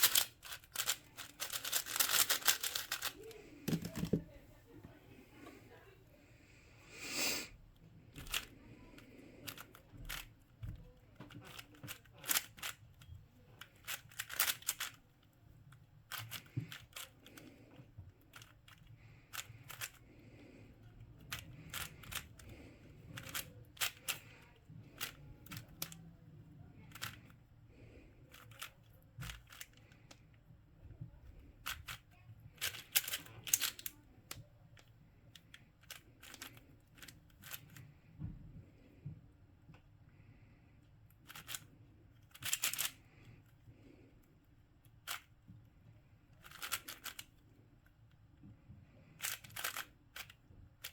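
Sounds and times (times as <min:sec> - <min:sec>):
puzzle cube layers clicking: 0:00.0 - 0:03.1, 0:13.6 - 0:15.0.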